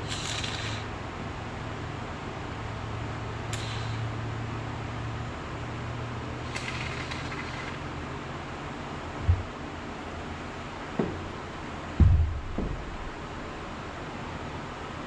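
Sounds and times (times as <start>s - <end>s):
steady low hum: 0.0s - 15.0s
spray can click: 3.6s - 3.9s.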